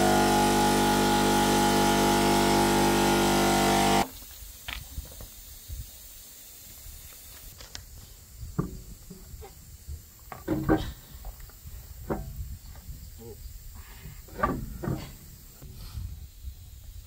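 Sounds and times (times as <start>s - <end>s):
electric air compressor running: 0.0s - 4.1s.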